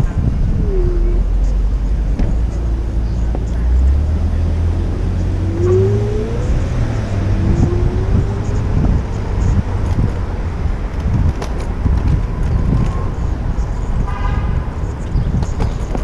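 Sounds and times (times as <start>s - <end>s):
vehicle engine accelerating: 0.0s - 13.9s
city street traffic: 0.0s - 16.0s
wind buffeting microphone: 0.0s - 16.0s.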